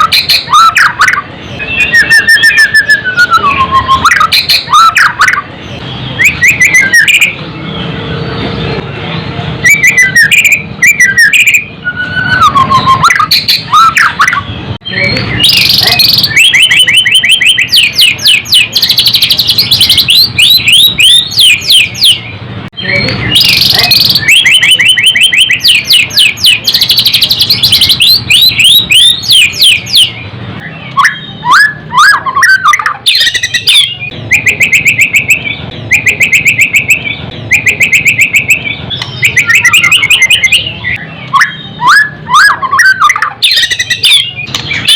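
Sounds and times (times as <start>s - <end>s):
low gliding bird whistles: 0.0s - 5.4s, 15.4s - 22.2s
songbird singing rattling trills: 0.0s - 44.9s.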